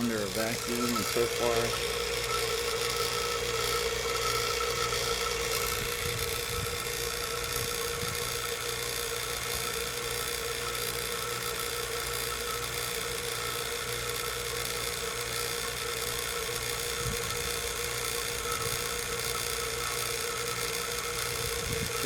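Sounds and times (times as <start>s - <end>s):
vacuum pump humming: 0.0s - 22.0s.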